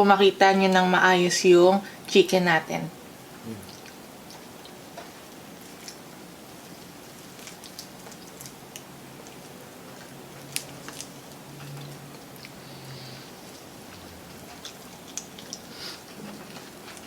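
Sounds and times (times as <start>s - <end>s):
fried chicken crunching being chewed: 3.7s - 17.0s.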